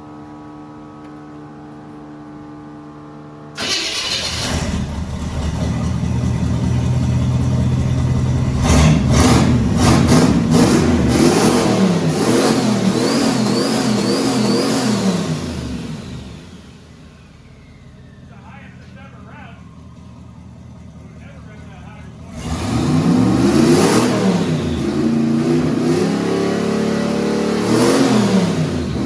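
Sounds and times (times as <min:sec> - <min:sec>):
car engine revving: 0:03.6 - 0:29.0
turbo whine: 0:11.5 - 0:29.0.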